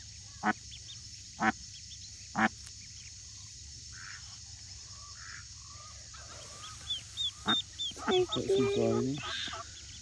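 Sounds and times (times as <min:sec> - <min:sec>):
duckling peeping: 0:05.0 - 0:10.0
duck quacking: 0:07.2 - 0:09.7.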